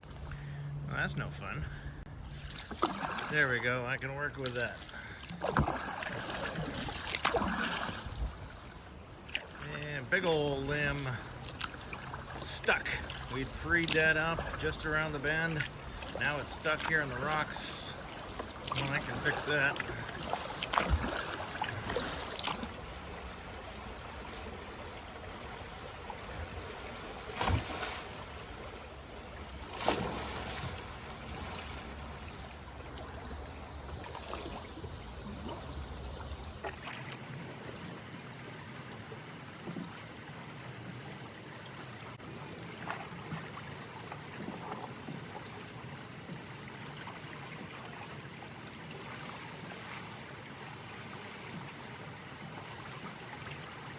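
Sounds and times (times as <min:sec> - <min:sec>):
water splashes and knocks: 0:02.3 - 0:38.1, 0:38.9 - 0:53.9
water running over rocks: 0:09.6 - 0:39.6.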